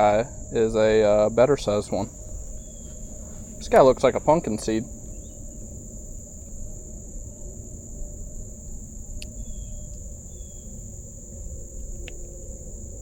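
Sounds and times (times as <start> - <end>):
insects chorus: 0.0 - 13.0
low outdoor rumble: 0.0 - 13.0.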